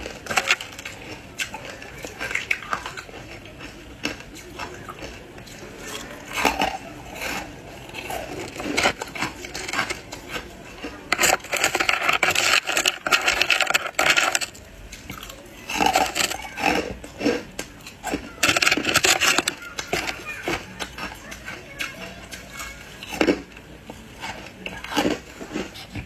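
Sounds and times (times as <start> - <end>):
ice being chewed: 0.0 - 26.0.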